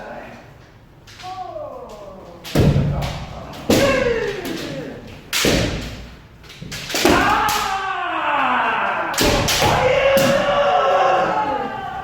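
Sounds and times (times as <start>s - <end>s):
bamboo sword strikes: 2.4s - 7.8s, 9.2s - 10.5s
loud yell falling in pitch: 7.1s - 12.0s.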